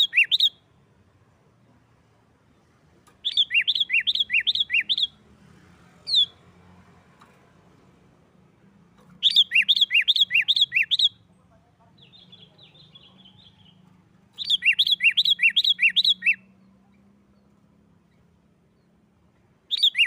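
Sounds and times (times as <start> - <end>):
faint bird twittering: 3.2 - 5.2, 9.2 - 11.3, 12.0 - 19.0, 19.7 - 20.0.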